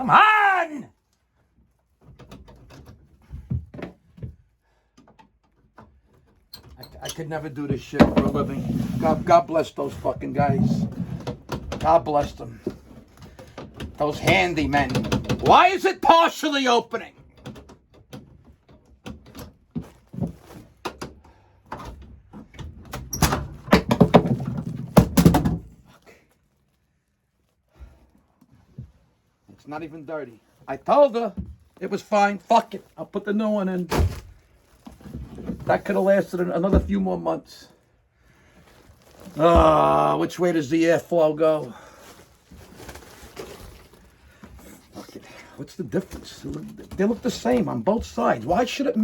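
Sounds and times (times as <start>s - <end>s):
cover knocking and rattling: 7.7s - 9.3s, 10.4s - 11.9s, 23.2s - 25.8s.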